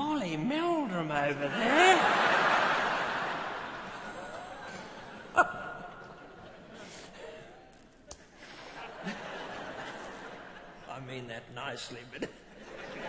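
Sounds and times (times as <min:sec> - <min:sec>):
large audience laughing: 0:01.4 - 0:07.3, 0:08.4 - 0:10.9, 0:12.5 - 0:13.0.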